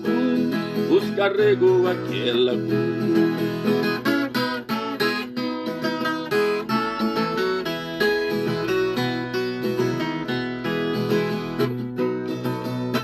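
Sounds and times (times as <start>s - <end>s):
folk guitar plucked and strummed: 0.0s - 13.0s.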